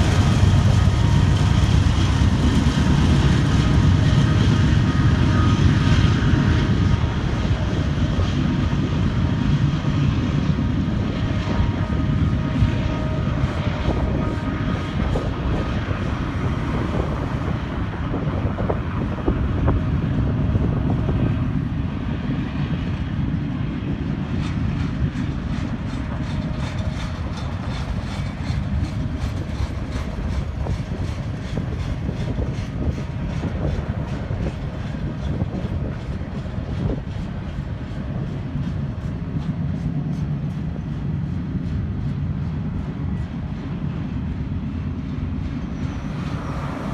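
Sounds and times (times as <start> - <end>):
steel wheels rumbling on rail: 0.0 - 46.9
wheels clicking over rail joints: 24.5 - 42.2.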